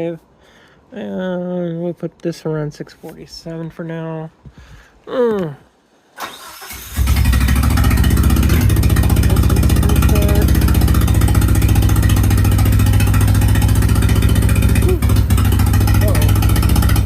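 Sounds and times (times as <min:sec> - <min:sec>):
car engine cranking and running: 0:06.2 - 0:17.0.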